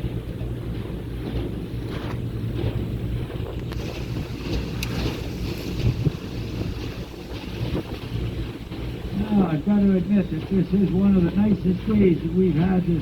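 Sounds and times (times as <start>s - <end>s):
speedboat engine running: 0.0s - 13.0s
water rushing past hull: 0.0s - 13.0s
wind buffeting microphone: 0.0s - 13.0s.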